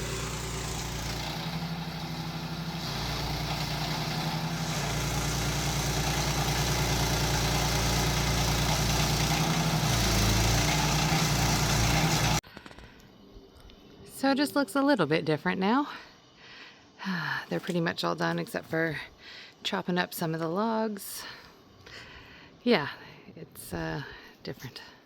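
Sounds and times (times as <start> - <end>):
cutting wheel grinding wood: 0.0 - 12.4
stump grinder engine running: 0.0 - 12.4.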